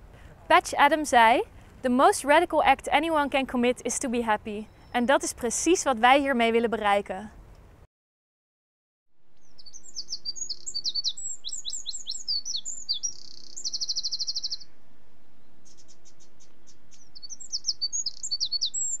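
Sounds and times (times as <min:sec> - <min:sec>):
small bird singing: 0:04.6 - 0:05.4, 0:09.4 - 0:19.0.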